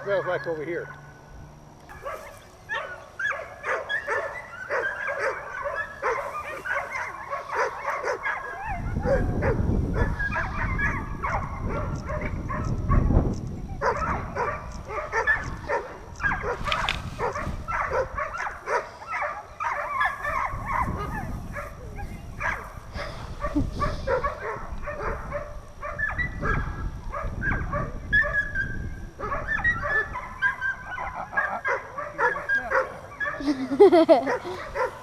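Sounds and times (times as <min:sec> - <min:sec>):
dog whining and yipping: 0:27.4 - 0:31.1.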